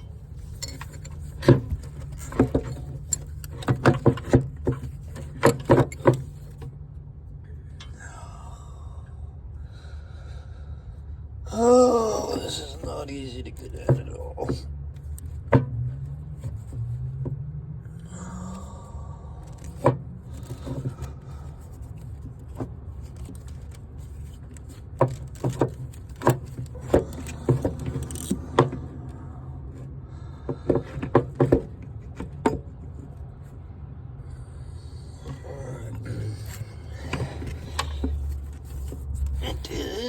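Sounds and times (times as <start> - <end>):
metal tools clinking: 0.0 - 6.6, 23.1 - 28.7.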